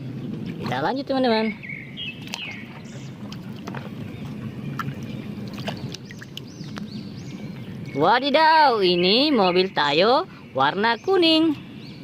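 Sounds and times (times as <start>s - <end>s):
water sloshing and splashing: 0.0s - 8.3s.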